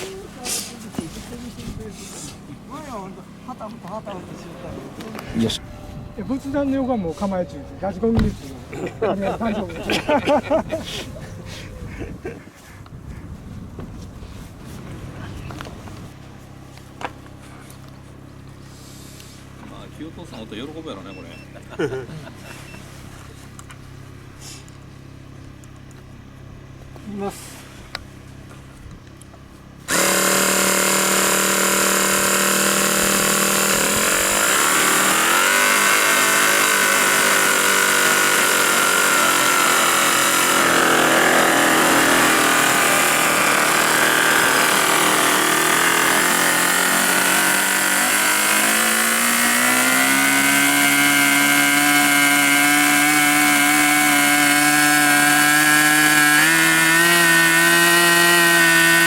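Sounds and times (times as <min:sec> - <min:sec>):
model radial engine running: 0:29.9 - 0:59.0.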